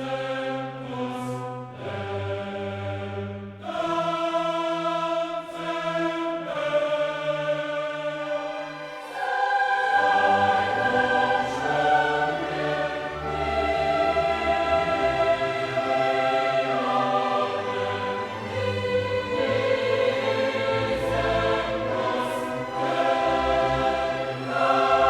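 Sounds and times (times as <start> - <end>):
choir singing held chords: 0.0 - 25.0
orchestra playing: 8.4 - 25.0.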